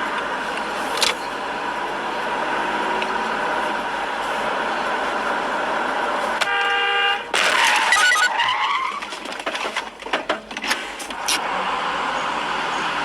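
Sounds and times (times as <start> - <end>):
car road noise: 0.0 - 13.0
car horn blast: 6.4 - 8.3.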